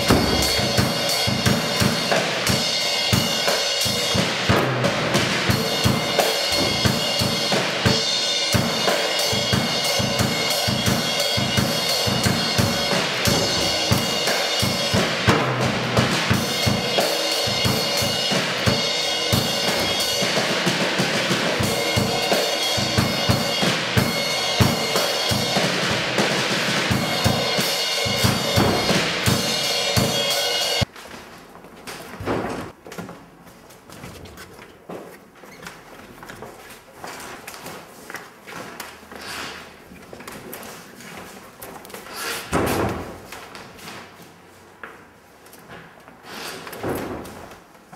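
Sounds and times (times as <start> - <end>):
drum kit solo: 0.0 - 30.9.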